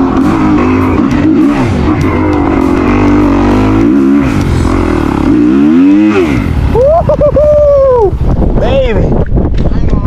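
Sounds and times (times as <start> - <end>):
dirt bike engine revving: 0.0 - 8.3.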